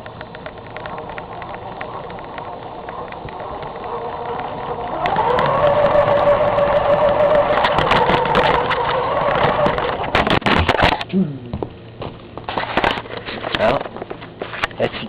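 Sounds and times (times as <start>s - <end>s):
scattered clicks: 0.0s - 11.1s
electric motor whining: 0.4s - 10.3s.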